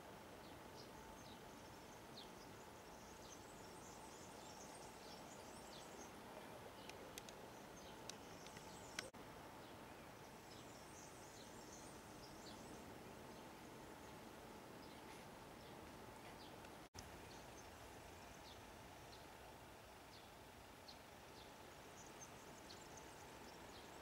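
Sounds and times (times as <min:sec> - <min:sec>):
steady hiss: 0:00.0 - 0:24.0
small birds chirping and twittering: 0:00.2 - 0:24.0
sharp clicks: 0:06.9 - 0:07.4, 0:08.1 - 0:09.1.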